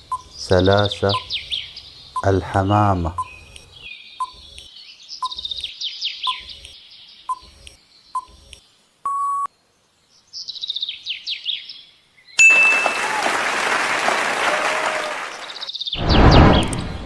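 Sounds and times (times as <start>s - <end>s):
birds chirping: 0.0s - 17.0s
short steady beep: 9.1s - 9.5s.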